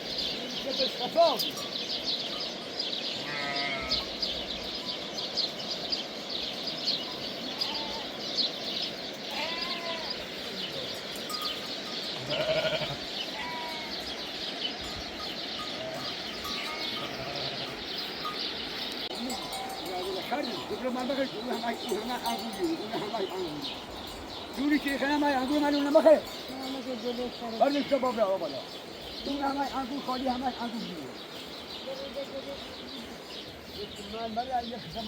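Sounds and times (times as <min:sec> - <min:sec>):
sheep and goats bleating: 0:03.0 - 0:04.8, 0:07.0 - 0:35.0.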